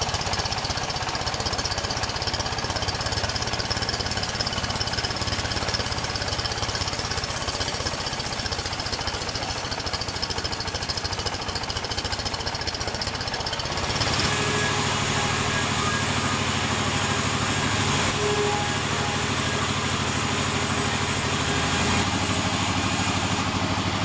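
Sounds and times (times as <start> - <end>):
sawmill engine pulsing: 0.0 - 24.0.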